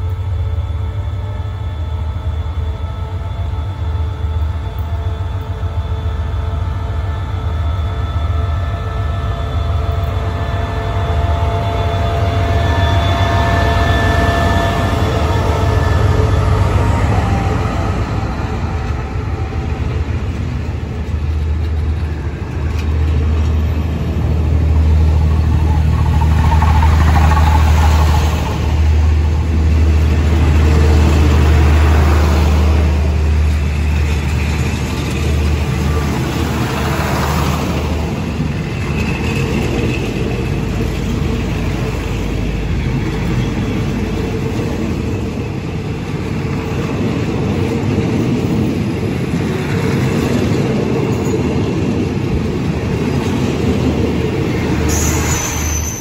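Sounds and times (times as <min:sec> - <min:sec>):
diesel engine drone: 0:00.0 - 0:48.6
train wheels on rails: 0:00.0 - 0:56.0
carriages rumbling: 0:13.3 - 0:56.0.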